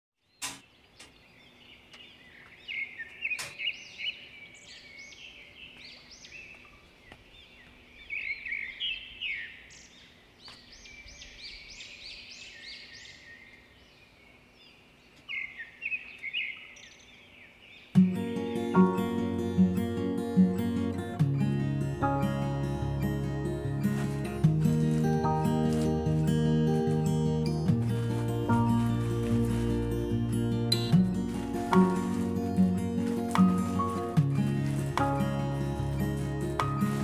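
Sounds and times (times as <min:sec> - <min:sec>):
birds chirping: 0:00.2 - 0:37.0.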